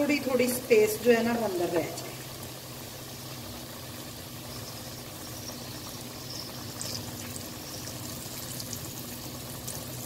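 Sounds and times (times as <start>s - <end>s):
chicken deep-frying with crackling: 0.0s - 10.0s.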